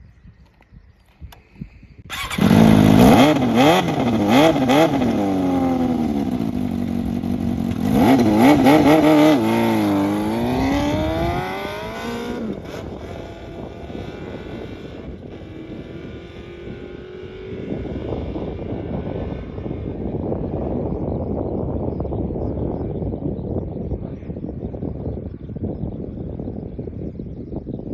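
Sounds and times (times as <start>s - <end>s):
motorcycle engine revving: 2.1s - 21.1s.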